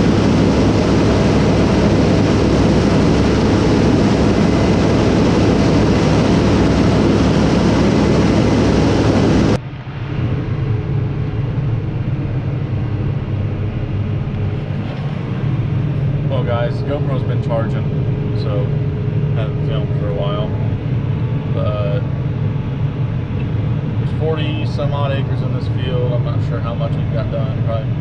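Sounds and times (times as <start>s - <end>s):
harvest machinery running: 0.0s - 9.6s
engine drone with low hum: 0.0s - 28.0s.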